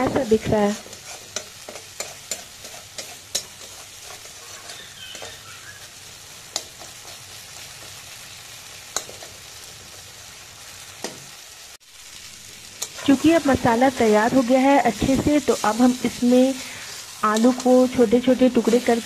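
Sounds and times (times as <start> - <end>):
spatula stirring and scraping: 0.0 - 8.2, 8.8 - 10.3, 12.7 - 19.0
sauce sizzling in a pan: 0.0 - 19.0
spatula clicking against pan: 1.4 - 3.8, 6.5 - 7.0, 8.9 - 9.3.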